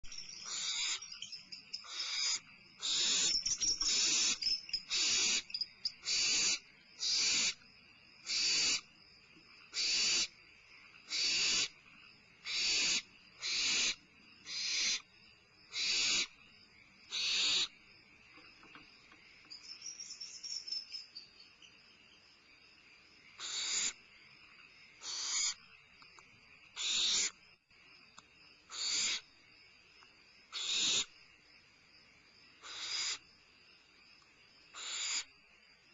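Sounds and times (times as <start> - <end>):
barn owl owlets hissing screech calls: 0.1 - 7.6, 8.2 - 8.9, 9.7 - 10.4, 11.0 - 11.8, 12.4 - 15.1, 15.7 - 16.4, 17.1 - 17.7, 23.4 - 24.0, 25.0 - 25.6, 26.7 - 27.4, 28.7 - 29.3, 30.5 - 31.1, 32.6 - 33.3, 34.7 - 35.3.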